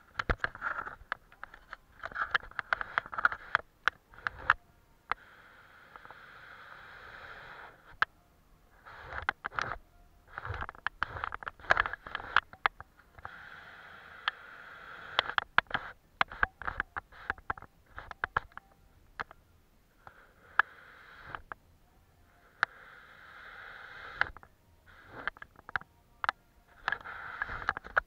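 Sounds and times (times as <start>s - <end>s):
sharp clicks and taps: 0.1s - 5.2s, 8.9s - 13.4s, 15.1s - 19.4s, 25.2s - 28.0s.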